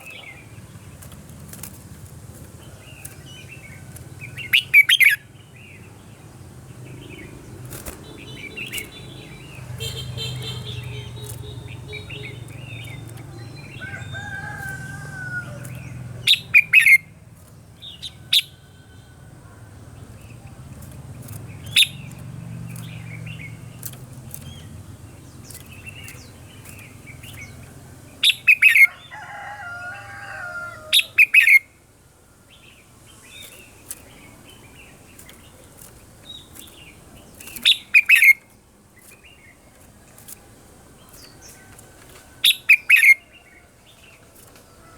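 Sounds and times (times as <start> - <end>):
bird singing warbling phrases: 2.6 - 19.1, 20.0 - 29.1, 30.8 - 31.8, 32.6 - 39.9, 42.4 - 44.2.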